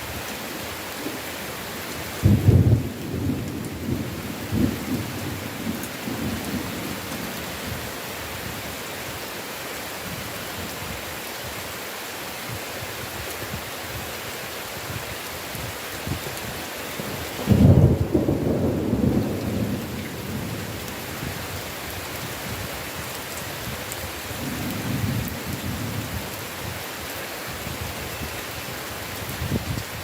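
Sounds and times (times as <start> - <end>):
thunder clap and rumble: 2.2 - 7.4, 17.4 - 21.4, 24.4 - 26.3.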